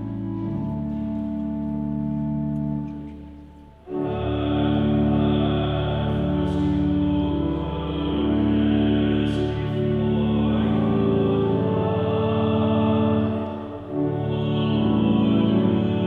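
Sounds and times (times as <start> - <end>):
church organ playing hymn: 0.0 - 16.0
people singing: 4.0 - 16.0.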